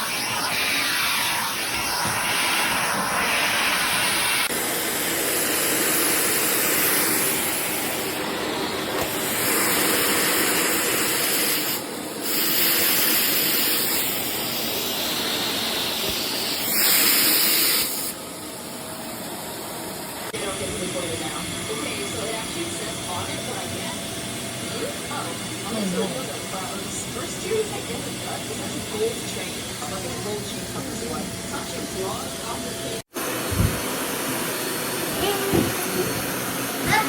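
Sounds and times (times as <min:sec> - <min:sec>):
vacuum cleaner suction hiss: 0:00.0 - 0:18.2, 0:33.0 - 0:37.0.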